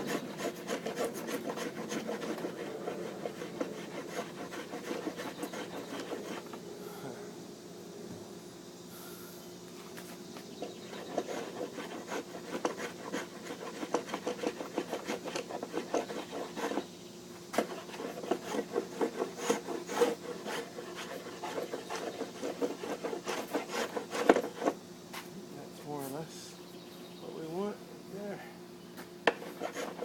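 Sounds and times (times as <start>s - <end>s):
hand tool shaving wood: 0.0s - 6.6s, 10.6s - 16.9s, 17.5s - 24.8s, 29.3s - 30.0s.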